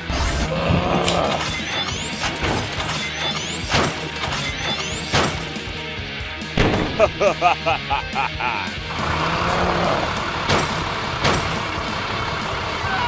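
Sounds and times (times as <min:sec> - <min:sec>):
background music: 0:00.0 - 0:13.0
shattering crash: 0:06.6 - 0:07.2.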